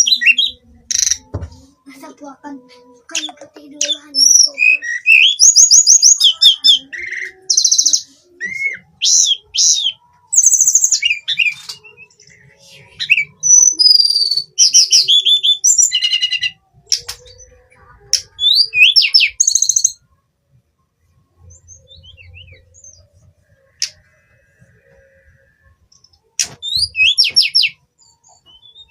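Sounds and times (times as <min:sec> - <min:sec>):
bird singing whistled trills: 0:00.0 - 0:01.2, 0:04.2 - 0:12.2, 0:13.0 - 0:16.6, 0:18.4 - 0:20.0, 0:21.4 - 0:23.1, 0:25.9 - 0:28.9.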